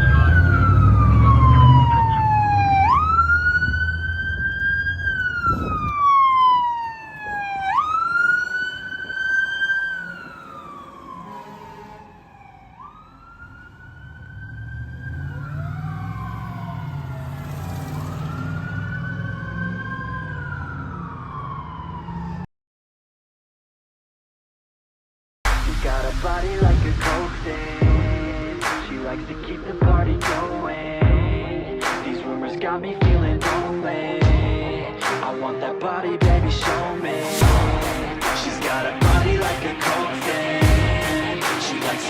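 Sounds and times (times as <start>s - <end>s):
truck engine rumble: 0.0s - 21.3s, 25.5s - 42.0s
faint second siren wail: 0.0s - 22.5s, 35.9s - 42.0s
fire truck siren wailing: 0.0s - 22.5s, 25.7s - 42.0s.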